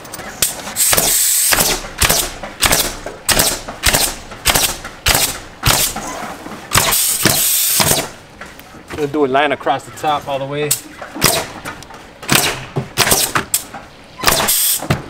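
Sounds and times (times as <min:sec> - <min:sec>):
pneumatic stapler firing: 0:00.4 - 0:08.2, 0:10.7 - 0:11.6, 0:12.3 - 0:15.0.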